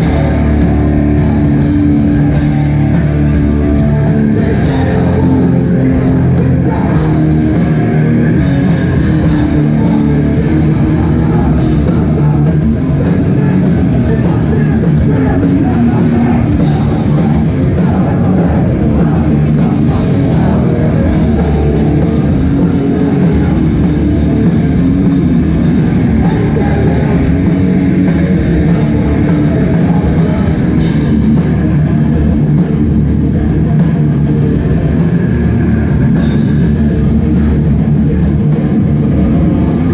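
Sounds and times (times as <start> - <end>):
bass guitar: 0.0 - 39.9
distorted electric guitars: 0.0 - 39.9
drum kit: 0.0 - 39.9
shouted vocals: 3.9 - 31.0.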